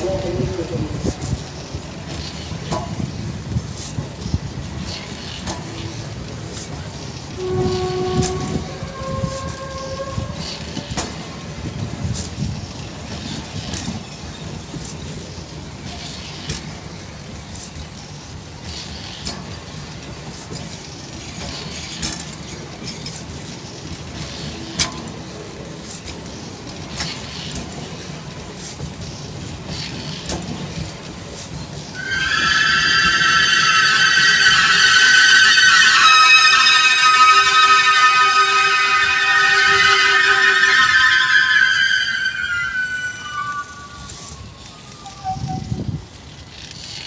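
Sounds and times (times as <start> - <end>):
train rumbling past: 4.4 - 11.3, 32.0 - 46.1.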